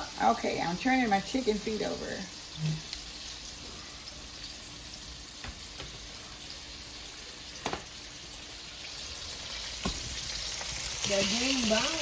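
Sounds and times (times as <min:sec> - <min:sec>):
food sizzling in hot oil: 0:00.0 - 0:12.0
light knocks in pan: 0:07.6 - 0:07.9, 0:09.8 - 0:10.2.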